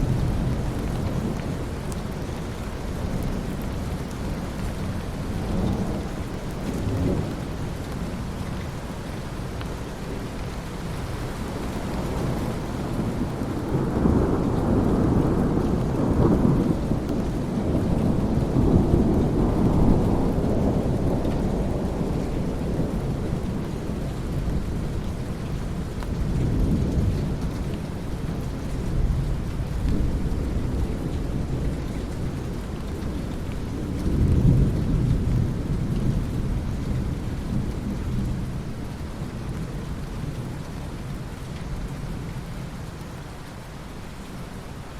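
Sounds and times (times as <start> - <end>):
steady rain: 0.0 - 44.9
rolling thunder: 10.9 - 25.0.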